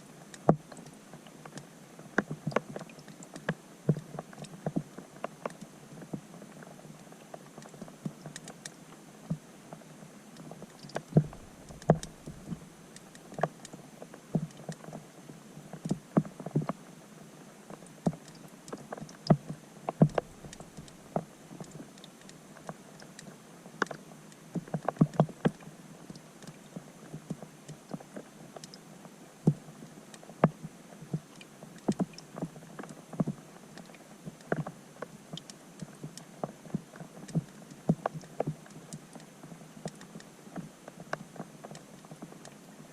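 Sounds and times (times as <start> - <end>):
faint steady hiss: 0.0 - 42.9
raindrops heard underwater: 0.1 - 42.6.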